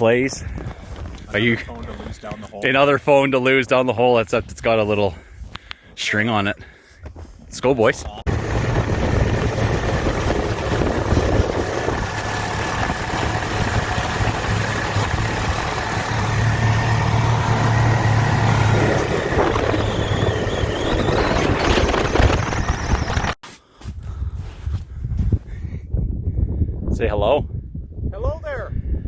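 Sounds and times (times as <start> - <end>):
snowmobile engine running: 8.3 - 23.4.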